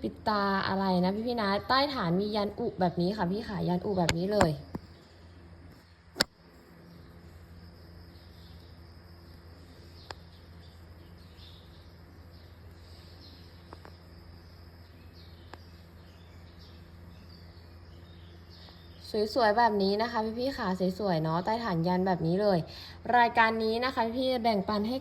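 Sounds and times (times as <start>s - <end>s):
faint insect chirping: 0.0s - 25.0s
low steady hum: 0.0s - 25.0s
sharp click: 6.2s - 6.4s
faint ticks: 10.0s - 10.4s, 12.7s - 14.0s, 15.4s - 15.7s.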